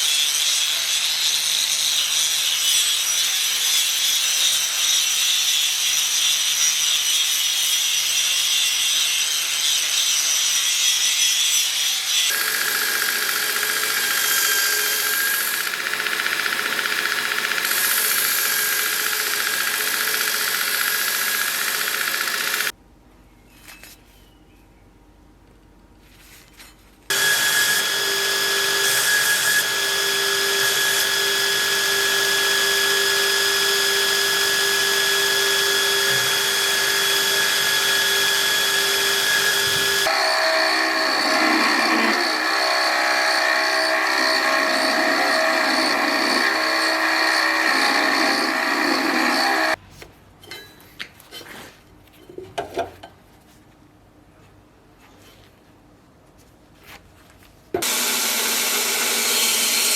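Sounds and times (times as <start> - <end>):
electric power tool whining: 12.3 - 22.7, 27.1 - 49.8, 57.8 - 59.9.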